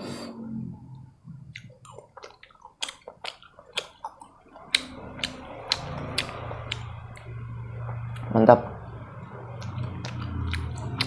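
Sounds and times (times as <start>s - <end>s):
wet chewing with mouth smacks: 1.5s - 8.3s, 9.2s - 11.0s.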